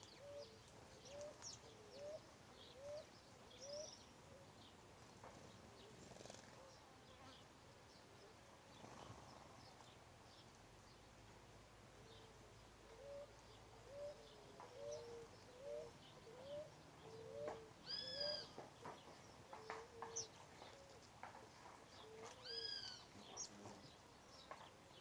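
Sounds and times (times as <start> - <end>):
small birds high chirps: 0.0 - 11.2, 12.1 - 25.0
bird low rising call: 13.9 - 18.5.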